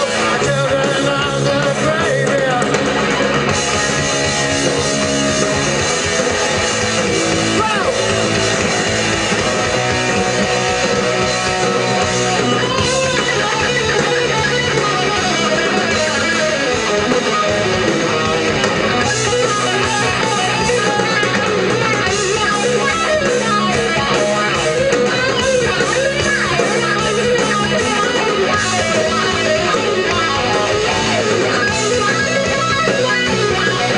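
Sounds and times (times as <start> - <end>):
distorted electric guitars: 0.0 - 33.9
rock band playing live: 0.0 - 33.9.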